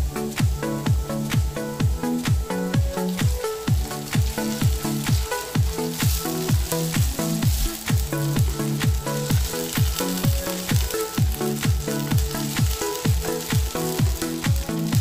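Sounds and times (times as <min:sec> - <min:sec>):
background music with kick drum beat: 0:00.0 - 0:15.0
onions sizzling in a frying pan: 0:00.0 - 0:15.0
spatula stirring in a pan: 0:02.6 - 0:15.0.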